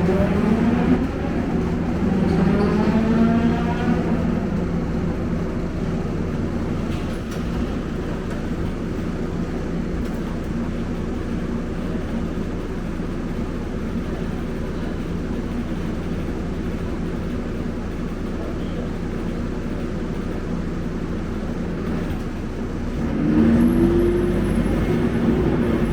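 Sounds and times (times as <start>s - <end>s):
bus engine and road rumble: 0.0s - 25.9s.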